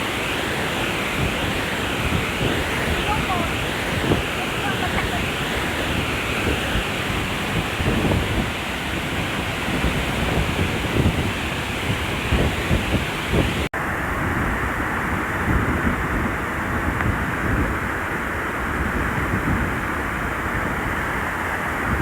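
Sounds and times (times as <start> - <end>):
waterfall rushing: 0.0 - 22.0
wind buffeting microphone: 0.0 - 22.0.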